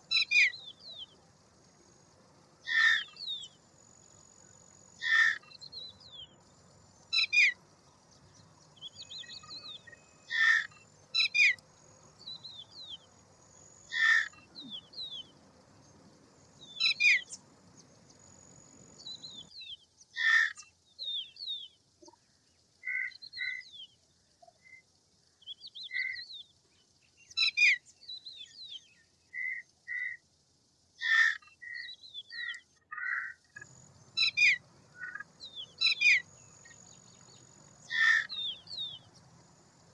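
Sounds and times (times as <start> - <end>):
harsh bird calls: 2.6 - 3.6, 4.3 - 6.4, 7.0 - 7.8, 8.6 - 21.4, 31.0 - 39.4
high bird chirps: 8.8 - 13.1, 16.6 - 17.4, 33.6 - 39.3.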